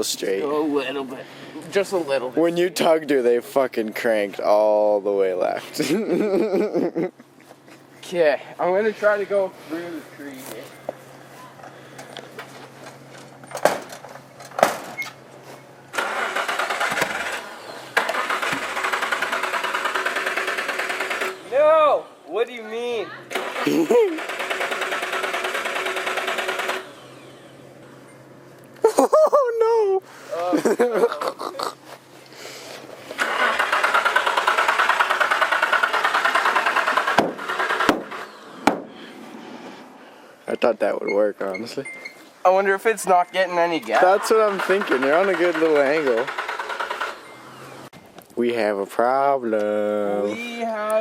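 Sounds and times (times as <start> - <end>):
car starter cranking engine: 15.9 - 21.8, 23.3 - 27.8, 33.1 - 39.1, 43.8 - 47.9
knocks: 37.2 - 39.0.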